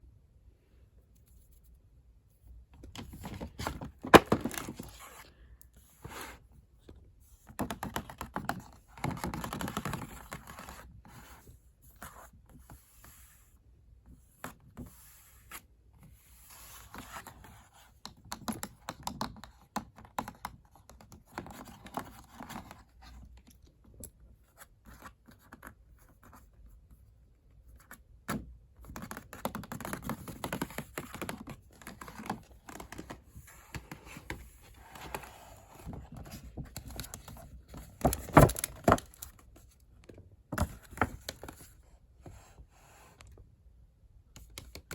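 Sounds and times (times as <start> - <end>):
paper and cardboard rustling: 2.9 - 5.2, 31.7 - 39.7.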